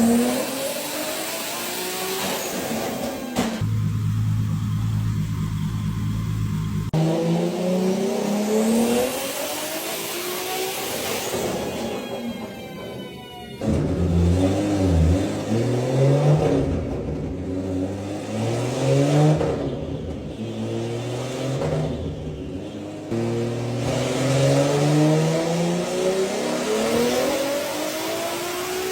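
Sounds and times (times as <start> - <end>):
car engine revving hard: 0.0 - 4.7, 6.3 - 11.8, 13.9 - 19.7, 22.6 - 28.9.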